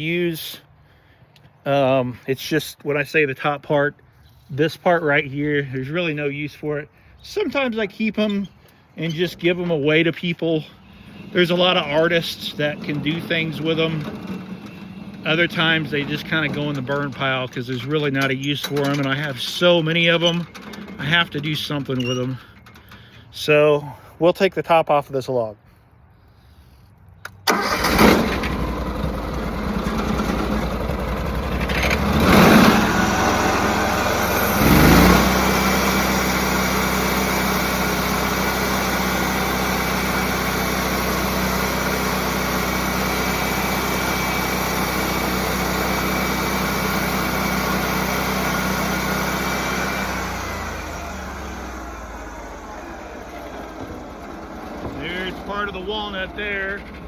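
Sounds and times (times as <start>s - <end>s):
sawmill engine running: 4.9s - 23.6s, 27.5s - 57.0s
saw blade cutting log: 34.2s - 51.8s.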